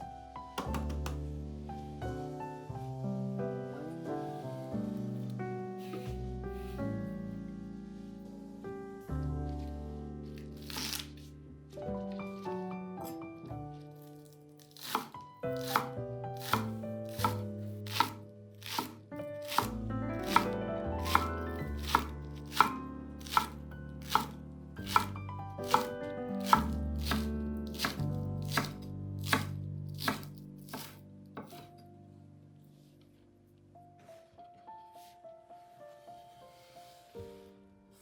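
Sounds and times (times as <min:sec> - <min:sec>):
background music: 0:00.0 - 0:32.2
knife chopping on cutting board: 0:00.6 - 0:01.2, 0:05.8 - 0:06.7, 0:10.6 - 0:11.2, 0:14.6 - 0:31.8.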